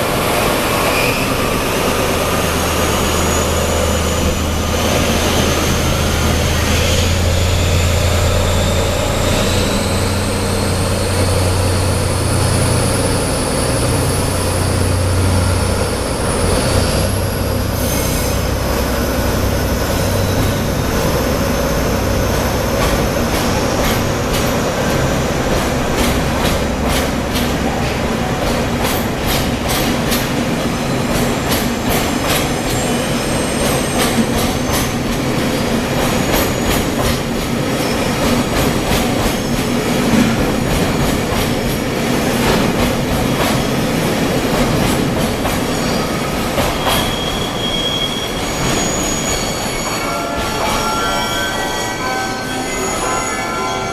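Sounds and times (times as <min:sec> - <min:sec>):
high-pitched wheel squeal: 0:00.7 - 0:05.7, 0:14.6 - 0:18.6, 0:45.7 - 0:53.9
train wheels clicking over rail joints: 0:18.4 - 0:47.5.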